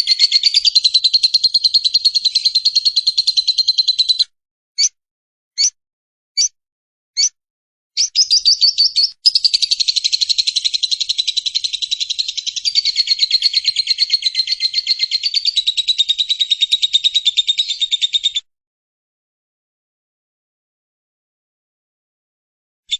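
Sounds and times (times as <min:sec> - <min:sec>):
lovebird rapid chattering: 0:00.0 - 0:04.2, 0:08.0 - 0:18.4.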